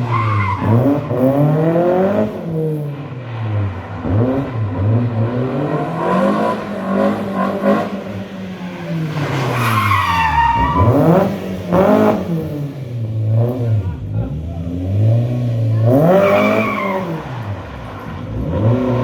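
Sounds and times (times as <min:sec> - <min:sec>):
car engine revving hard: 0:00.0 - 0:19.0
tyre squeal: 0:09.5 - 0:11.0, 0:16.1 - 0:18.2.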